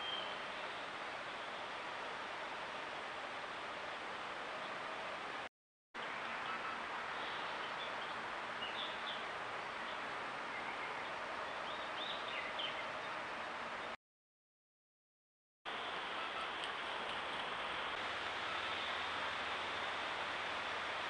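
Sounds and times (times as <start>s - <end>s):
faint bird chirps: 0.0s - 0.8s, 16.1s - 16.6s
steady outdoor hiss: 0.0s - 14.0s, 15.7s - 21.0s.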